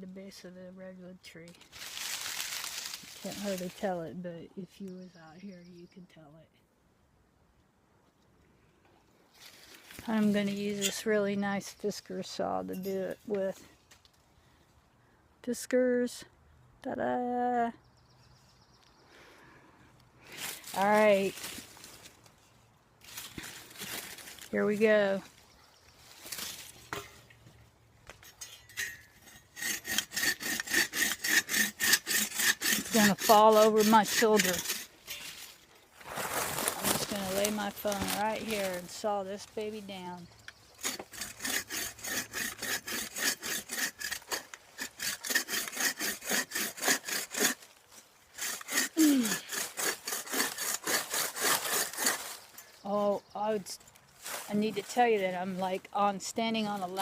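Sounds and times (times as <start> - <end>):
hand saw sawing wood: 28.2 - 35.4, 40.8 - 52.6.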